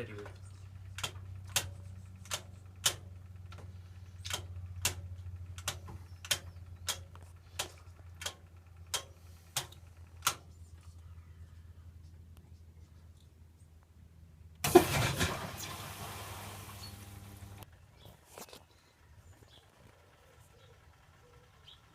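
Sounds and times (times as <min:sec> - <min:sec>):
sharp clicks: 0:00.2 - 0:10.5
washing machine low hum: 0:14.6 - 0:17.7.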